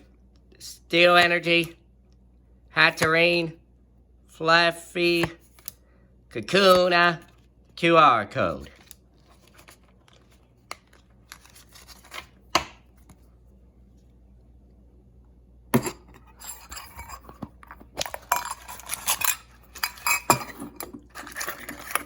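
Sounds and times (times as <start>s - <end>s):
metal tins clinking and rattling: 15.8s - 22.0s.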